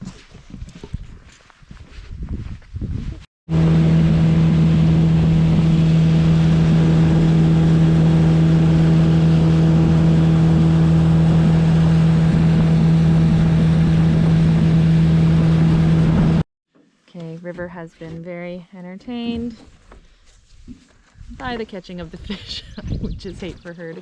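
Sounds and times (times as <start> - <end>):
outboard motor droning: 3.5 - 16.4.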